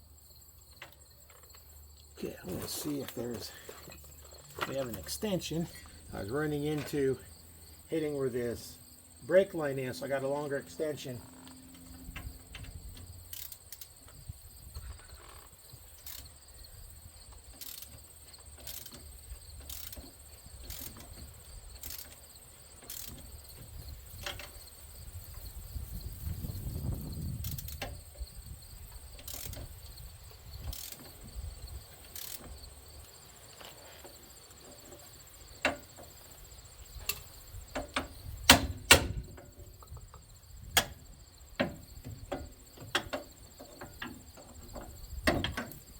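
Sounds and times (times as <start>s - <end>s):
insects chirping: 0.0s - 45.9s
sharp knocks: 37.8s - 39.4s.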